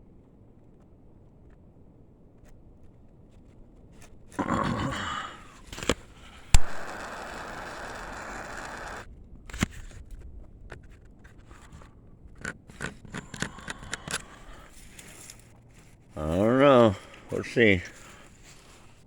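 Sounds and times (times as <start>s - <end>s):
torch lighting rush: 4.4s - 9.8s
torch flame hissing: 4.7s - 9.1s
sharp click: 5.7s - 9.8s.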